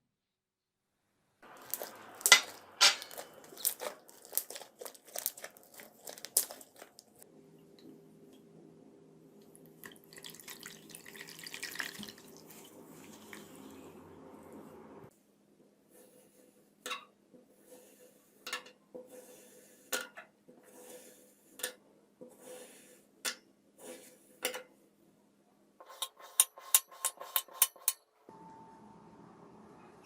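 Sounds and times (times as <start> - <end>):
slime squishing by hand: 1.5 - 7.2.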